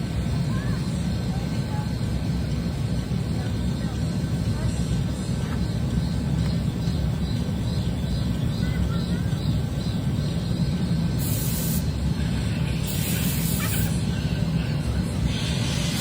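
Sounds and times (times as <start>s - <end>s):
low drone of shop machinery: 0.0s - 16.0s
spray gun air hiss: 11.2s - 14.1s, 15.2s - 16.0s.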